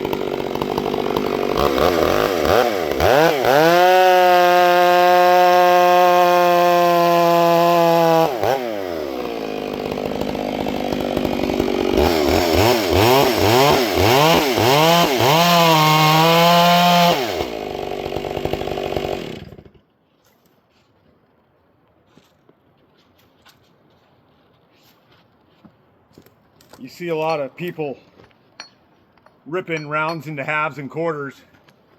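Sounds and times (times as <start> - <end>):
chainsaw engine revving: 0.0 - 19.8.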